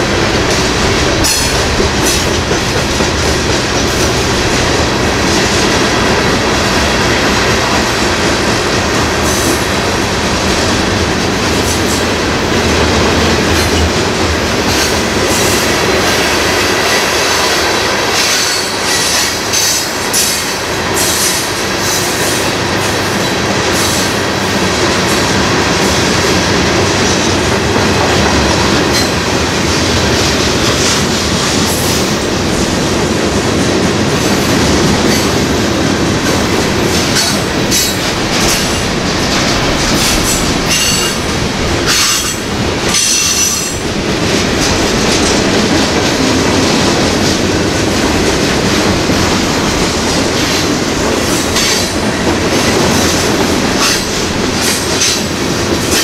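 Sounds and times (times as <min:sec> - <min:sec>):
train wheels rumbling on rails: 0:00.0 - 0:56.0
wheels clacking over rail joints: 0:00.0 - 0:56.0.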